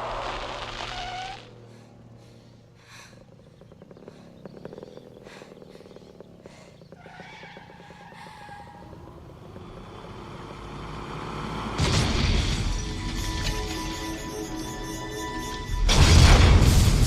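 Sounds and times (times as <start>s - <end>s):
heavy truck engine: 8.9s - 14.6s
film music score: 10.0s - 17.0s.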